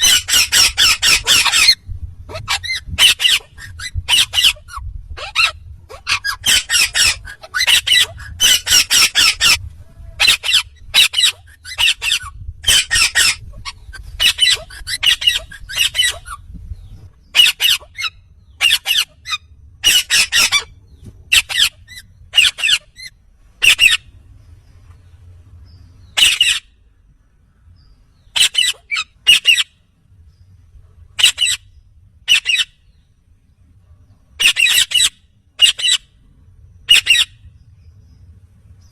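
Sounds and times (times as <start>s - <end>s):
parakeet squawking: 0.0s - 9.6s, 10.2s - 16.5s, 17.3s - 20.7s, 21.3s - 24.1s, 26.2s - 26.7s, 28.3s - 29.8s, 31.2s - 31.6s, 32.3s - 32.8s, 34.4s - 36.1s, 36.9s - 37.4s.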